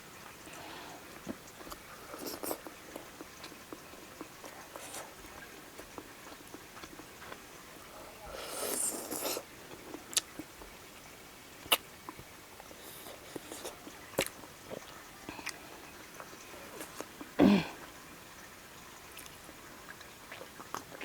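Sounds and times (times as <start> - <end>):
chewing and mouth smacks: 1.1 - 7.5, 8.4 - 10.7, 11.6 - 17.9, 19.1 - 21.0.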